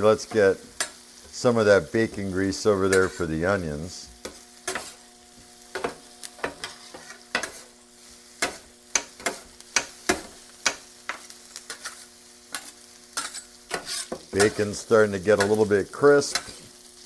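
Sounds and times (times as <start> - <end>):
bacon and onion sizzling: 0.0 - 17.0
metal spatula scraping griddle: 2.8 - 3.3, 4.2 - 5.1, 5.7 - 16.7.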